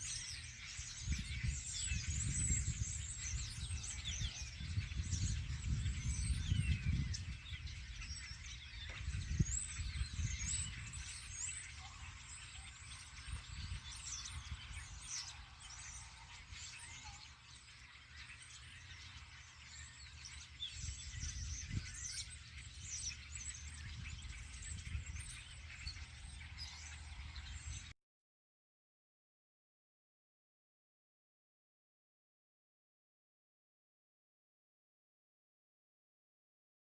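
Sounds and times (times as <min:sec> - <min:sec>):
birds chirping and singing: 0:00.0 - 0:28.0.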